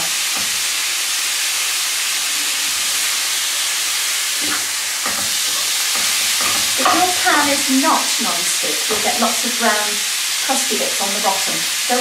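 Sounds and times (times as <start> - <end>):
chicken sizzling in a frying pan: 0.0 - 12.0
spatula scraping and knocking in pan: 4.3 - 7.8.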